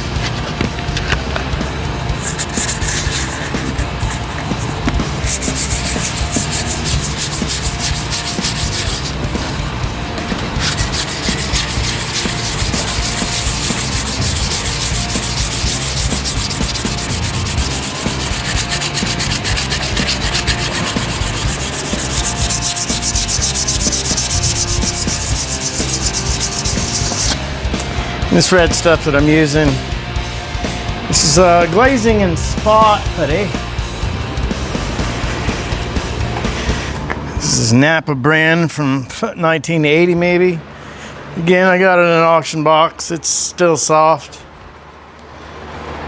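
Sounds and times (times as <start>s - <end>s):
sandpaper rubbing: 0.0s - 29.5s.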